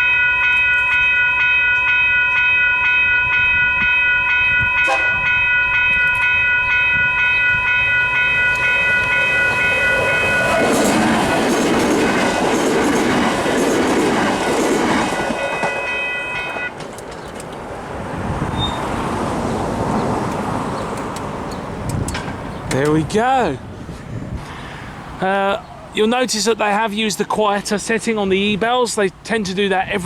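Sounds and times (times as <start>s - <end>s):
level crossing bells ringing: 0.0s - 11.7s, 14.3s - 16.8s
train rumbling and clattering: 0.0s - 25.2s.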